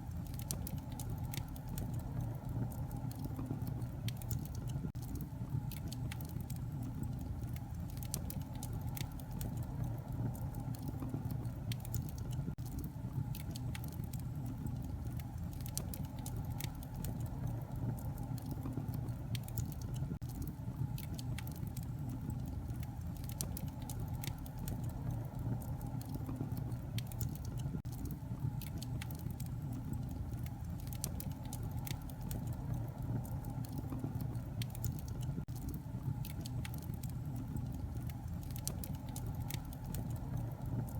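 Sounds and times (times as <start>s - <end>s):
sharp pops and snaps: 0.0s - 40.9s
wood fire crackling: 0.0s - 40.9s.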